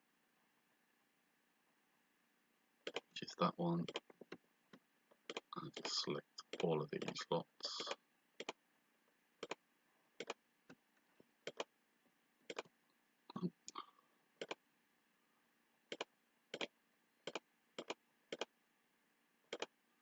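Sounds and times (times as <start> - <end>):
computer mouse clicks: 2.8 - 3.1, 9.4 - 9.6, 10.2 - 10.8, 11.4 - 11.7, 12.5 - 12.7, 14.4 - 14.6, 15.9 - 18.5, 19.5 - 19.7.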